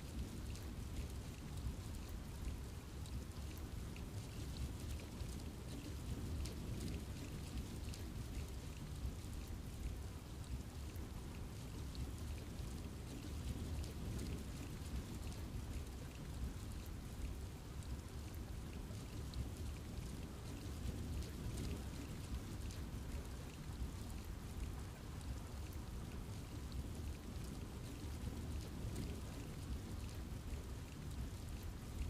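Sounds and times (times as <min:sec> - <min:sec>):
rain falling in forest: 0:00.0 - 0:32.0
raindrops ticking on leaves: 0:00.0 - 0:32.0.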